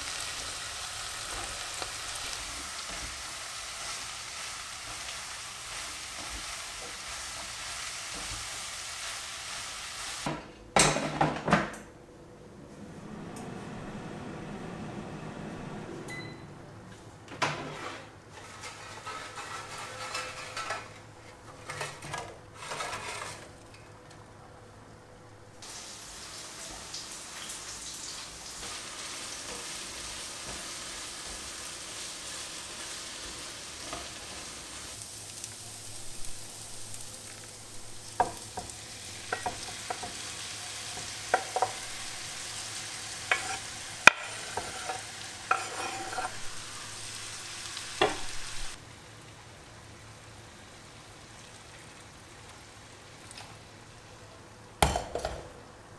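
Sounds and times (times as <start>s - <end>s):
food sizzling in a pan: 0.0s - 10.4s, 25.6s - 54.9s
utensil tapping and scraping pan: 17.3s - 23.6s, 38.2s - 40.2s, 41.0s - 42.1s, 43.2s - 46.6s.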